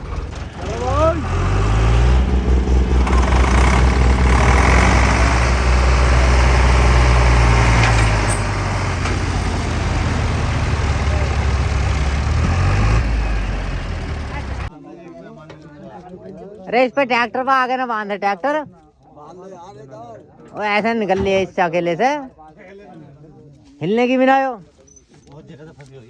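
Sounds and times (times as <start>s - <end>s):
tractor diesel engine under load: 0.0s - 14.7s.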